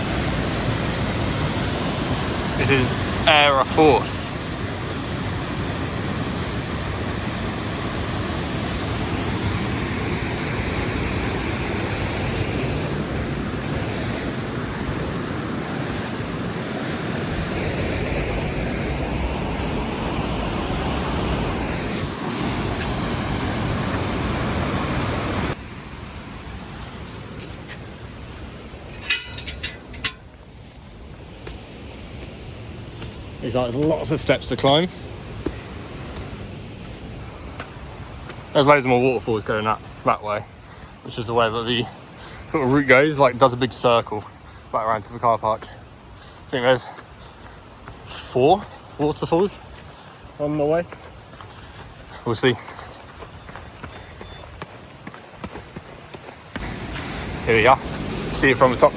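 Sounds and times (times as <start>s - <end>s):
waterfall rushing: 0.0s - 30.2s, 55.4s - 58.9s.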